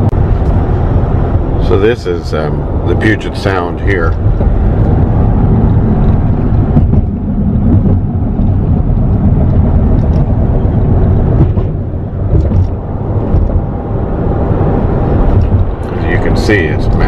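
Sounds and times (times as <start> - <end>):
car driving road rumble: 0.0 - 17.0.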